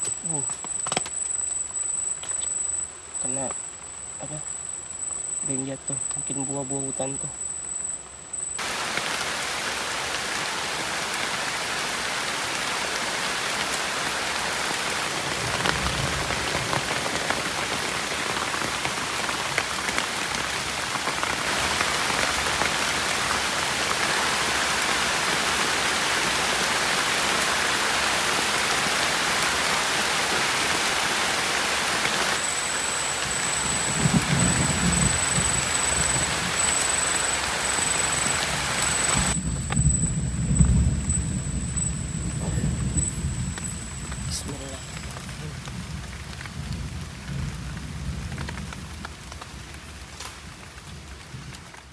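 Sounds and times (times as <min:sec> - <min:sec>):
thunder rumbling: 0:08.6 - 0:51.7
heavy rain falling: 0:08.6 - 0:51.9.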